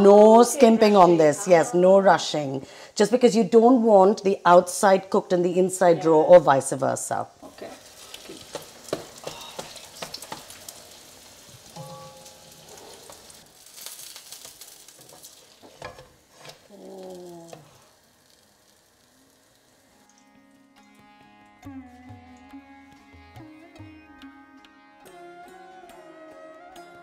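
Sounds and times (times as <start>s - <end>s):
bread sizzling in hot oil: 7.4s - 20.8s
sharp oil crackles: 7.4s - 20.8s
sitar music: 11.7s - 12.7s, 19.8s - 27.0s.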